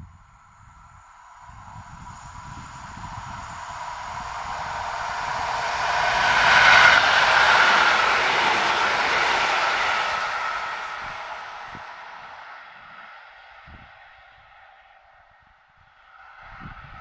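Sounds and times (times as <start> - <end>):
train wheels running on rails: 0.2 - 14.0.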